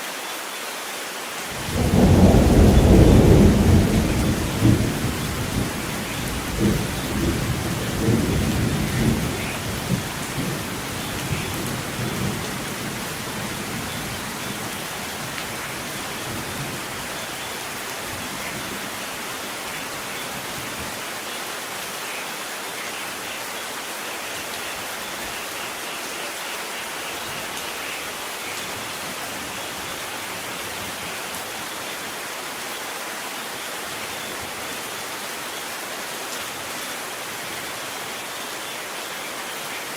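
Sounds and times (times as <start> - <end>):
steady rain: 0.0 - 39.9
thunder rumbling: 1.6 - 17.1.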